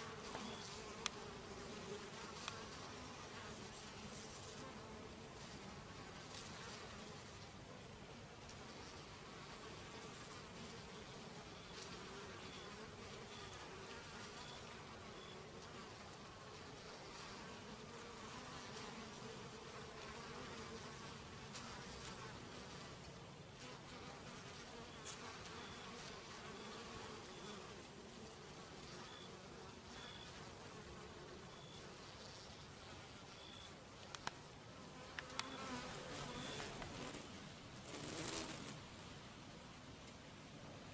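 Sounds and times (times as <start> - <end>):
honeybees buzzing: 0.0 - 7.3, 23.7 - 39.0.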